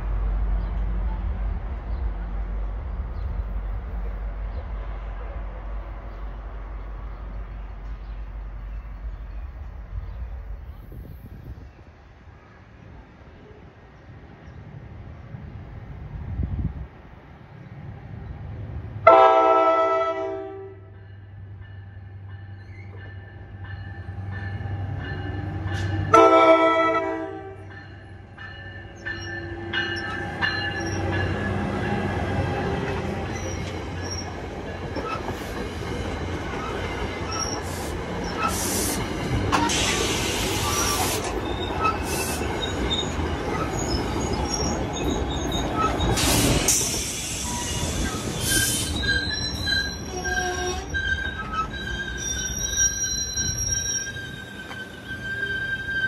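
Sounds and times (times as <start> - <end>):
train horn: 19.0 - 21.0, 25.8 - 27.7, 50.1 - 51.0
train coaches rolling on rails: 21.1 - 56.0
wheels and brakes squealing: 29.0 - 31.3, 33.3 - 34.4, 36.5 - 56.0
air hiss bursts: 37.6 - 41.4, 46.1 - 49.0.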